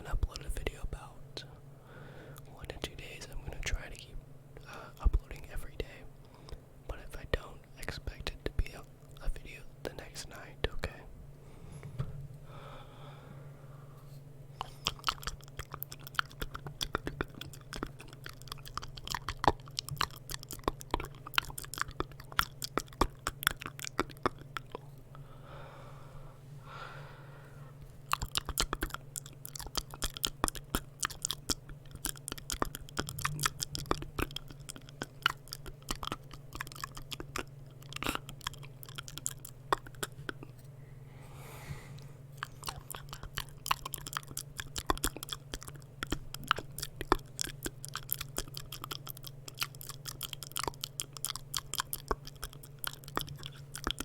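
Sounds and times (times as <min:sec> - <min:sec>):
soft breathing: 0:01.4 - 0:02.5, 0:11.0 - 0:15.1, 0:24.8 - 0:28.0, 0:40.1 - 0:43.3
tongue clicks and lip smacks: 0:14.6 - 0:25.1, 0:28.0 - 0:40.6, 0:42.4 - 0:54.0.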